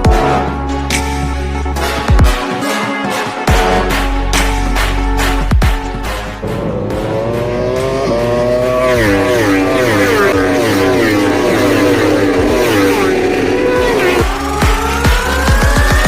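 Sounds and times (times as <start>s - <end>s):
racing motorcycle engine shifting gears: 6.0s - 16.0s
rising tone: 6.4s - 16.0s.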